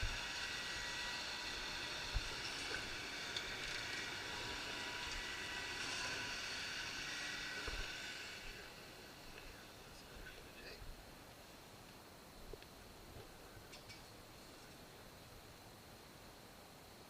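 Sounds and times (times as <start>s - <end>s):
vehicle noise: 0.0s - 10.8s
faint high whine: 0.0s - 17.0s.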